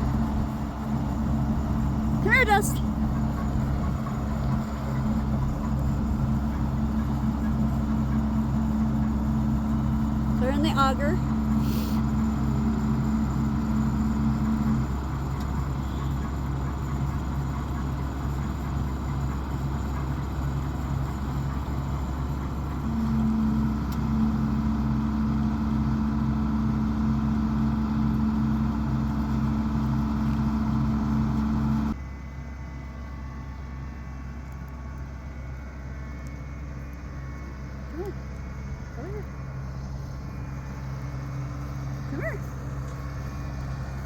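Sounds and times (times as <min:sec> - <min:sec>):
combine harvester running: 0:00.0 - 0:44.0.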